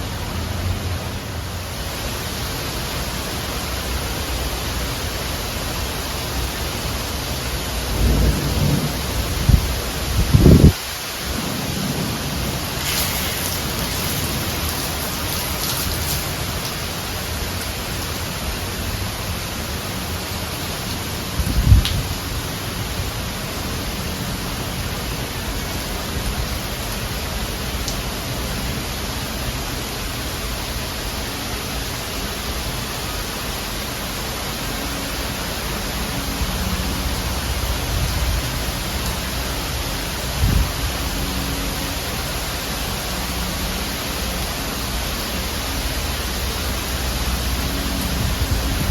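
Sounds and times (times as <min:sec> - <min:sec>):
heavy rain: 0:00.0 - 0:48.9.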